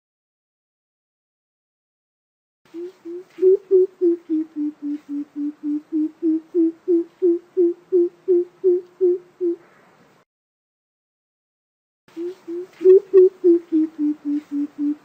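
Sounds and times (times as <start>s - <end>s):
deep low bird hoots: 2.7s - 9.8s, 12.1s - 15.0s.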